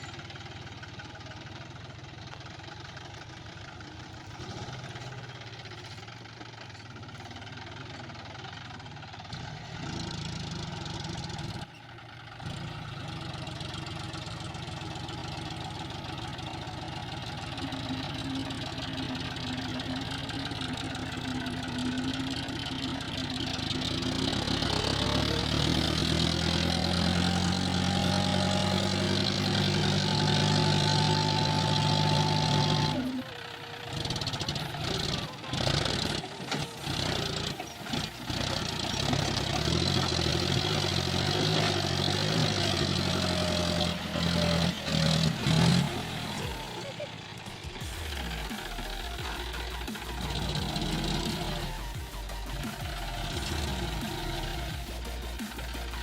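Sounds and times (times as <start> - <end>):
tractor diesel engine: 0.0 - 56.0.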